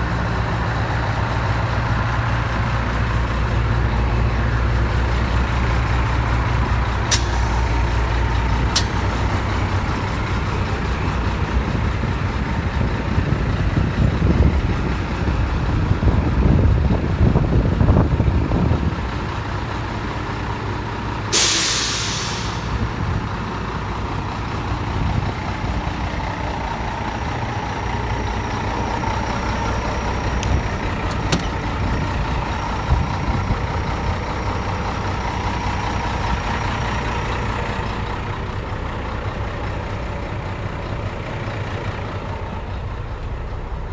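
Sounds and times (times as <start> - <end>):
diesel truck engine revving: 0.0 - 43.9
compressed air hiss: 7.1 - 8.1, 21.3 - 22.8.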